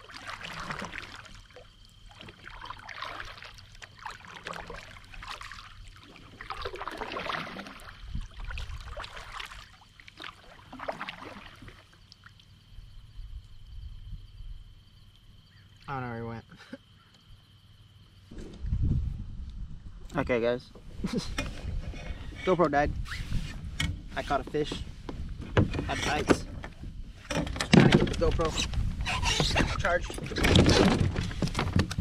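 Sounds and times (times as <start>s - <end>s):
water splashing around kayak: 0.0s - 12.7s, 20.2s - 32.0s.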